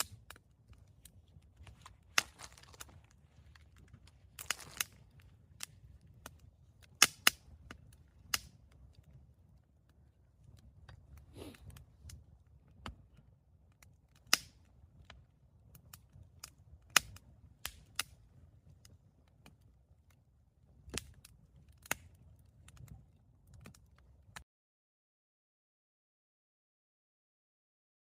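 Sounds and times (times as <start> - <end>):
campfire pops and snaps: 0.0 - 24.4
low fire rumble: 0.0 - 24.4.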